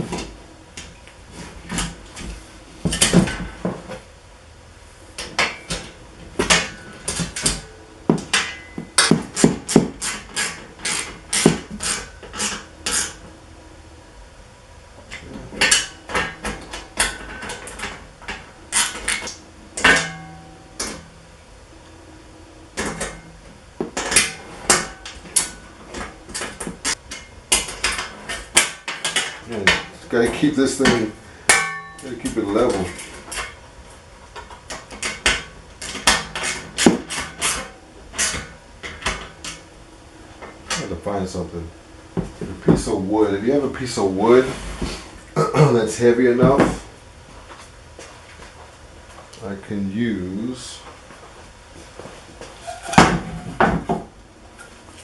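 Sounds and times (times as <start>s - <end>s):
metal hardware clinking: 30.8s - 33.6s.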